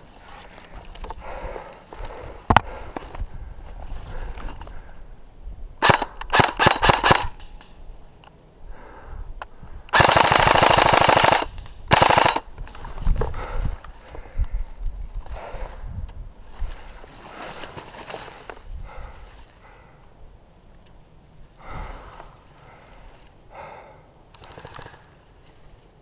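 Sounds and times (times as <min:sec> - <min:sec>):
airsoft rifle automatic burst: 0:05.8 - 0:07.5, 0:09.9 - 0:12.5
airsoft rifle shots: 0:05.8 - 0:07.7, 0:09.9 - 0:12.5.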